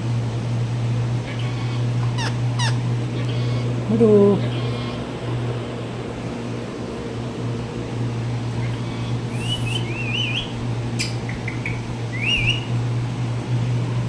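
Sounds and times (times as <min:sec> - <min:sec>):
steady low hum: 0:00.0 - 0:14.0
parrot whistled chirps: 0:09.3 - 0:12.7.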